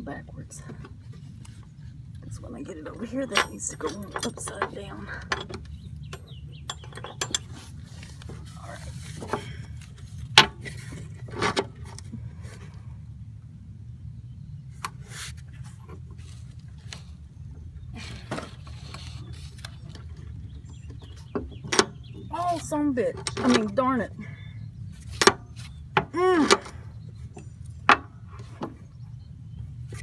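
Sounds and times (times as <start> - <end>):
steady low rumble: 0.0 - 30.0
metal clinks and knocks: 2.9 - 11.8.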